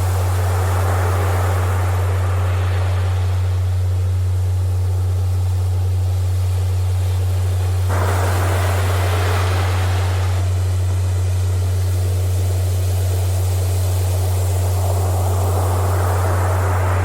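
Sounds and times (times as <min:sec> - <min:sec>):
ocean surf: 0:00.0 - 0:04.2, 0:07.5 - 0:11.2, 0:14.3 - 0:17.0.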